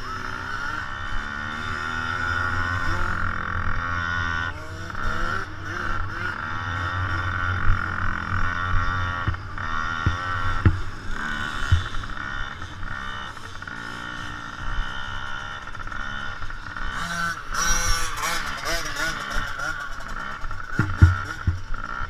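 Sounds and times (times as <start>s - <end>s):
motocross bike engines revving: 0.0s - 22.0s
steady buzz: 0.0s - 22.0s
short thumps: 20.8s - 21.7s.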